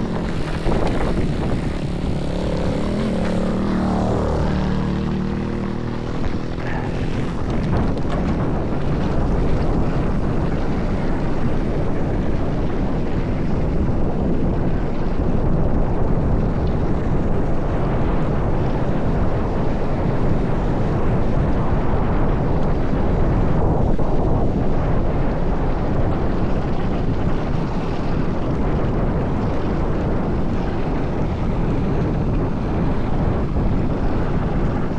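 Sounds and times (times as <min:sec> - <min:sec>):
pitched buzz: 0:00.0 - 0:08.0
bike tyres rattling over rough ground: 0:00.0 - 0:11.6
wind rushing on microphone: 0:00.0 - 0:34.9.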